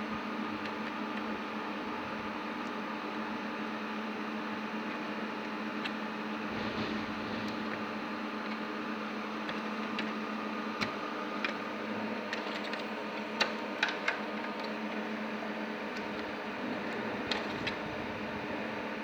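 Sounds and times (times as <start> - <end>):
electrical fan hum: 0.0 - 19.0.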